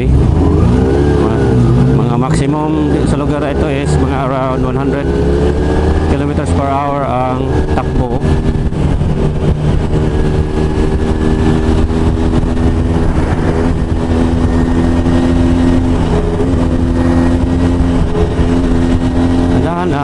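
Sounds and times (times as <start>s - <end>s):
motorcycle engine running: 0.0s - 20.0s
wind and road noise: 0.0s - 20.0s.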